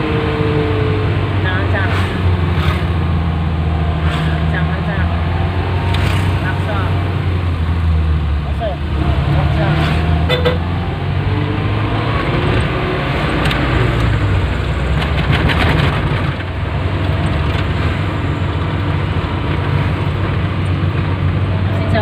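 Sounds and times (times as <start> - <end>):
road noise: 0.0 - 22.0.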